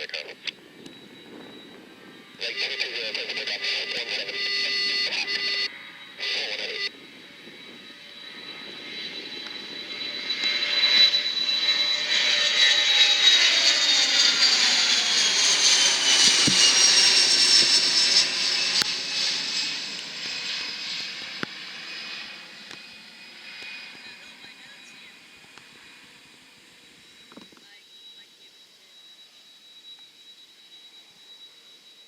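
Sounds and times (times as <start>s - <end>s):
scanner radio burst: 0.0s - 7.2s, 23.8s - 25.5s, 26.7s - 29.6s
jet aircraft passing: 0.0s - 32.0s.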